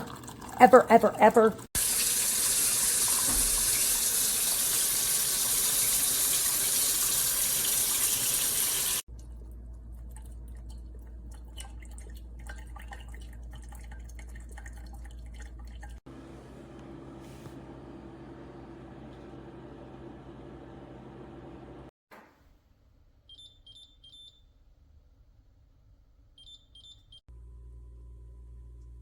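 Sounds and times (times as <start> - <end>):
water running hiss: 1.8 - 9.0.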